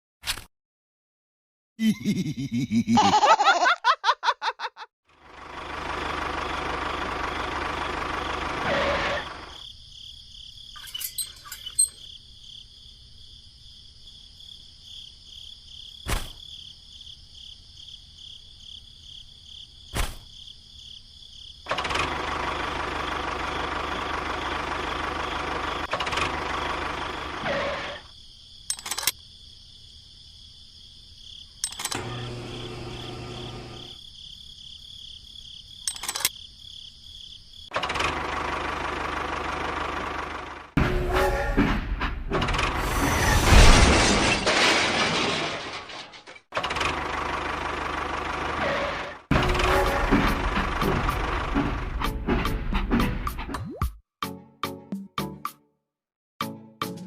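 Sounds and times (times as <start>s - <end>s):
insects chirring: 9.2s - 21.7s, 26.9s - 37.8s
small electric motor running: 32.0s - 34.0s.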